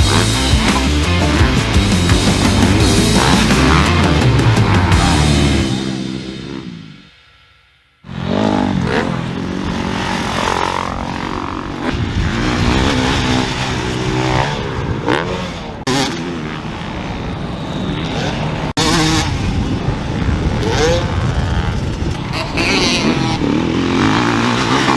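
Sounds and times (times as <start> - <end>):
dirt bike engines revving: 0.0 - 7.1, 8.1 - 24.9
rock music: 0.0 - 7.2.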